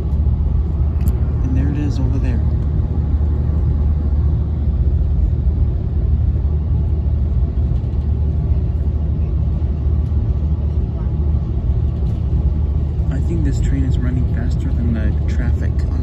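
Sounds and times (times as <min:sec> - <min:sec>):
train running on rails: 0:10.1 - 0:16.0.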